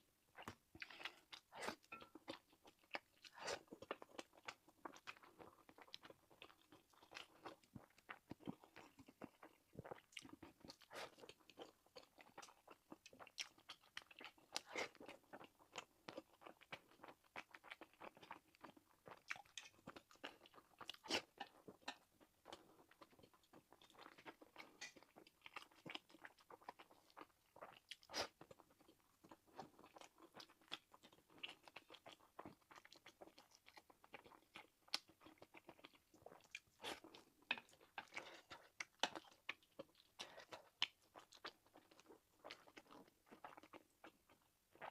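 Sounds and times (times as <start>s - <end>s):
chewing and biting food: 0.3s - 44.9s.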